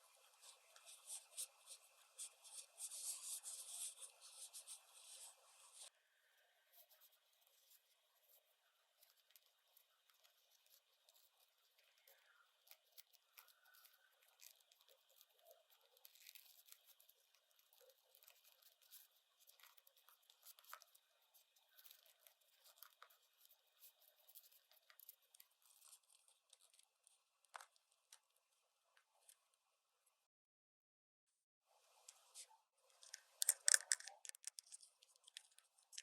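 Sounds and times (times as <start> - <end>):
plastic toy pieces clicking: 33.0 - 36.0.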